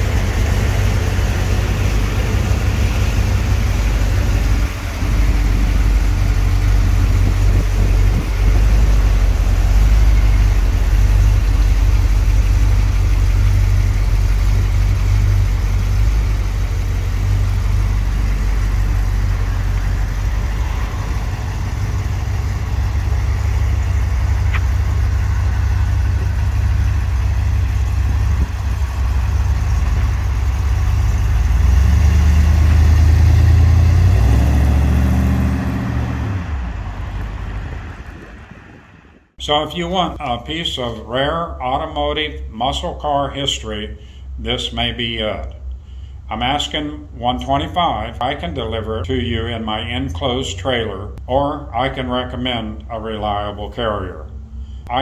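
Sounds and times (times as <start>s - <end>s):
car engine rumbling and revving: 0.0s - 39.4s.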